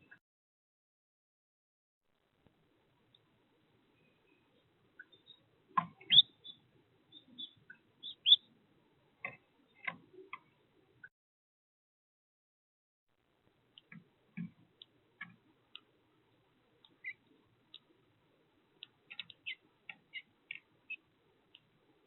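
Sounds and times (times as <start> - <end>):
birds clicking and tapping: 5.0 - 8.5, 9.2 - 10.6, 13.7 - 22.0.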